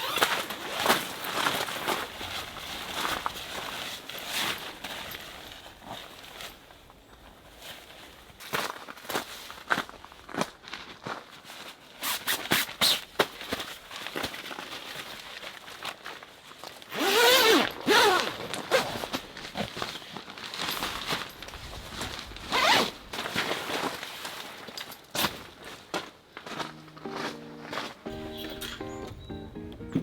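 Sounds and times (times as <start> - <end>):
zipper being pulled: 0.0 - 0.5, 16.9 - 19.7, 22.5 - 23.0
rustling and handling: 11.3 - 28.0.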